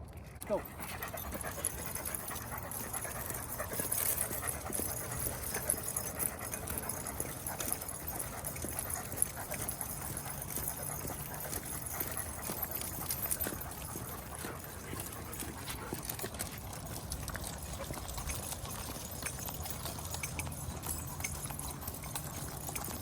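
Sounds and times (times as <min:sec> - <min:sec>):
clicking footsteps: 0:00.0 - 0:23.0
dogs panting: 0:00.0 - 0:23.0.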